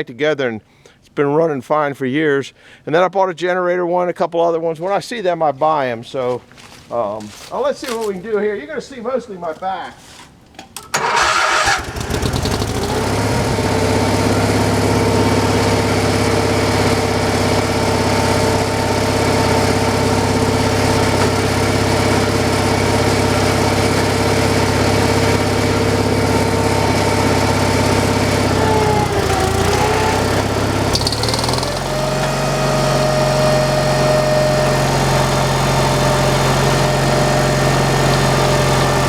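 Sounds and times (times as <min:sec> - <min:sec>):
small gasoline engine running: 0:11.0 - 0:39.0.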